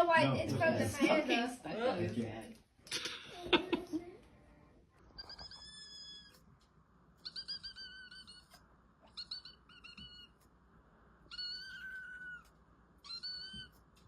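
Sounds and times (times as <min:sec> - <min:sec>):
pet crying in high plaintive calls: 0:07.2 - 0:10.4, 0:11.3 - 0:13.8.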